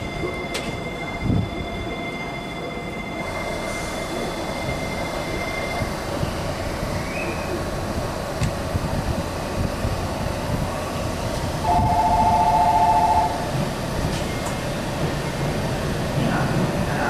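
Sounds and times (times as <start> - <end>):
train wheels and motors rumbling: 0.0 - 17.0
two-note electronic tone: 11.7 - 13.4.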